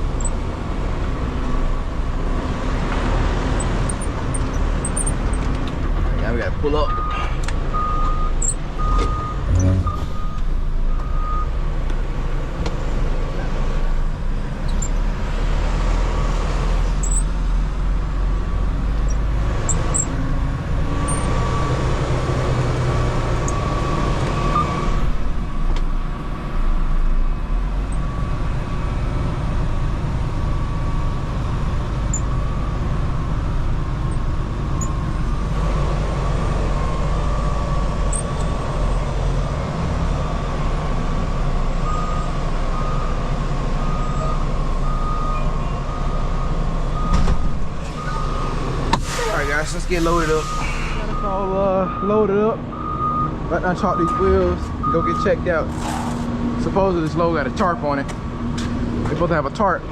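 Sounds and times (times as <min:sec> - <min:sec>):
diesel truck engine running: 0:00.0 - 0:59.9
reversing alarm beeping: 0:00.1 - 0:00.8, 0:06.8 - 0:11.6, 0:14.7 - 0:15.0, 0:17.0 - 0:17.3, 0:19.1 - 0:20.2, 0:20.9 - 0:21.9, 0:23.4 - 0:24.8, 0:34.1 - 0:35.5, 0:36.8 - 0:39.0, 0:41.8 - 0:43.2, 0:43.8 - 0:47.3, 0:48.0 - 0:48.6, 0:49.4 - 0:55.3.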